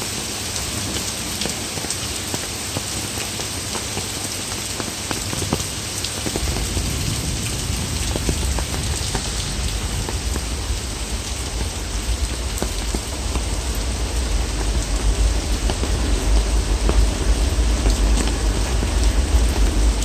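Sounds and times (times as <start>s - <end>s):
heavy rain downpour: 0.0s - 20.0s
low rumble: 6.2s - 20.0s.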